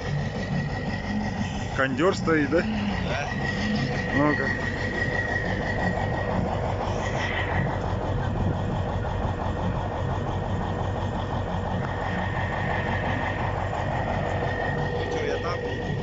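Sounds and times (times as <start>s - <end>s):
thin high whine: 0.0s - 9.0s, 11.6s - 16.0s
tractor diesel engine idling: 0.0s - 16.0s.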